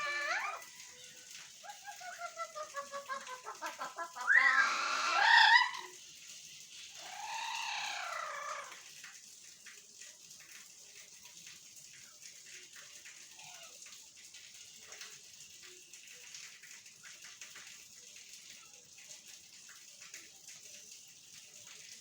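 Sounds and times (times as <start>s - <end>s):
parrots calling: 0.0s - 0.9s, 1.6s - 6.0s, 7.0s - 8.8s
parrot squawks gliding in pitch: 0.0s - 6.0s, 7.0s - 8.8s.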